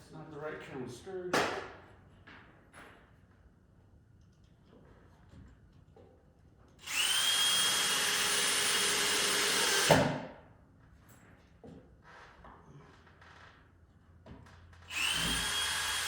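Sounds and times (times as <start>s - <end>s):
power drill driving screw: 6.8s - 10.0s, 14.9s - 16.0s.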